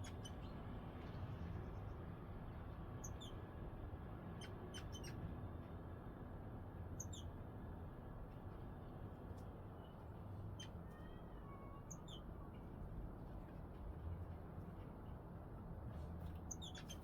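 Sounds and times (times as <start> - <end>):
songbirds chirping: 16.2 - 17.0.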